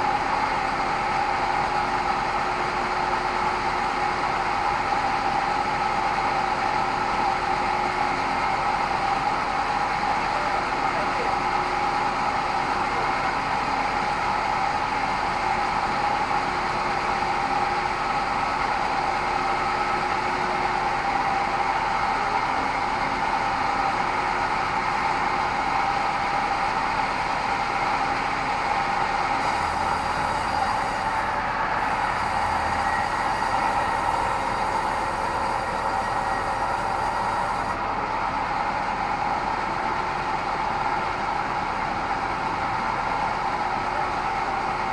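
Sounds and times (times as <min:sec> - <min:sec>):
band saw running: 0:29.4 - 0:37.8.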